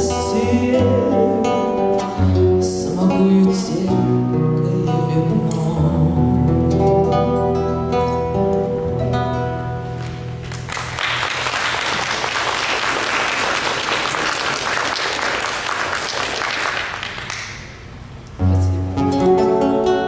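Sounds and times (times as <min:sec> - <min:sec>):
plucked string accompaniment: 0:00.0 - 0:11.0, 0:18.4 - 0:20.0
audience applauding: 0:10.0 - 0:17.8.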